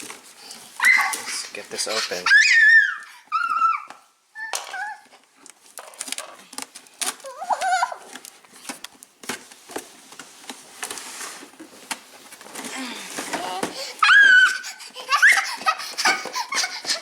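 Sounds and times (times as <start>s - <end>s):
cardboard packaging clicks and rustling: 5.4s - 14.4s.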